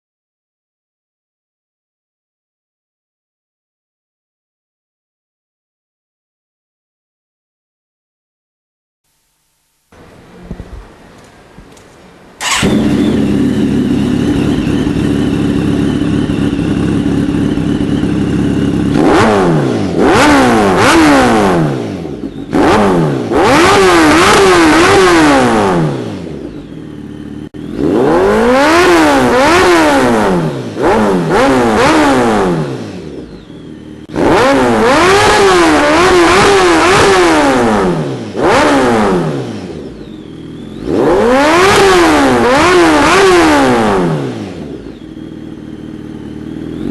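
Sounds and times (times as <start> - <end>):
motorcycle engine idling and revving: 10.0 - 46.9.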